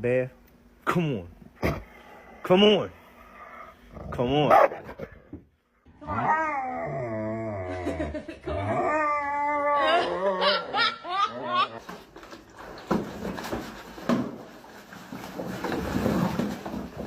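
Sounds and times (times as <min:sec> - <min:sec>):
dog howling and whining: 0:06.0 - 0:08.0, 0:08.6 - 0:10.5.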